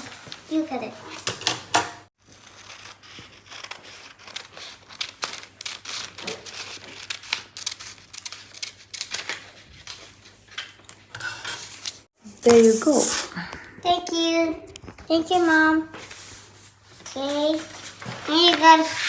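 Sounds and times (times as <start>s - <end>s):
scissors snipping paper: 2.3s - 11.0s
paper rustling and crinkling: 14.8s - 19.0s.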